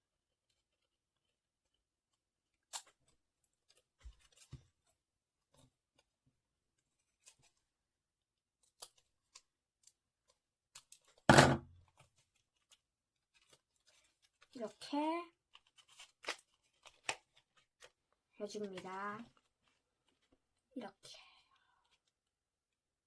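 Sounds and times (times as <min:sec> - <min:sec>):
loud knock: 0:11.3 - 0:11.6
paper handling: 0:11.8 - 0:14.5, 0:15.4 - 0:20.4
scissors snipping paper: 0:15.5 - 0:18.0.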